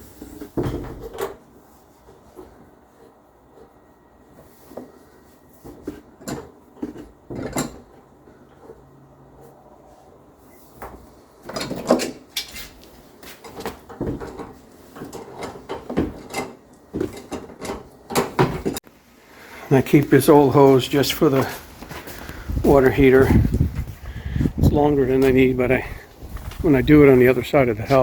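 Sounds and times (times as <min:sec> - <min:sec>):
hose coupling clunks and scrapes: 0:05.7 - 0:08.8, 0:11.4 - 0:18.8.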